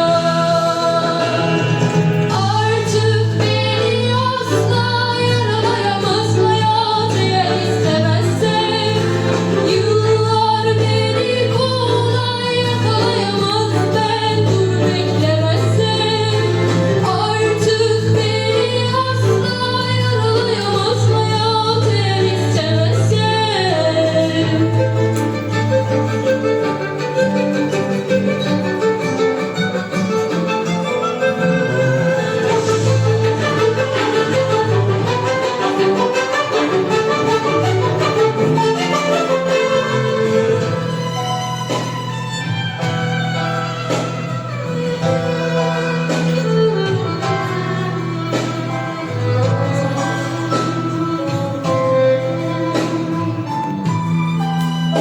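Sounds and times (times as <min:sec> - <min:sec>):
woman singing: 0:00.0 - 0:25.6, 0:46.0 - 0:53.8
instrumental accompaniment: 0:00.0 - 0:55.0.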